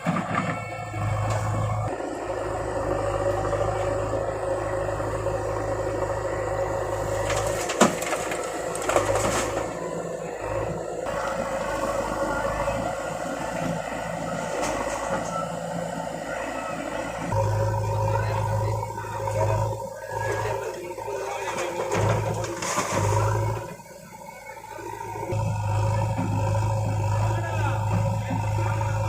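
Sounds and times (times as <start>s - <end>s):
heavy diesel machinery running: 0.0s - 29.0s.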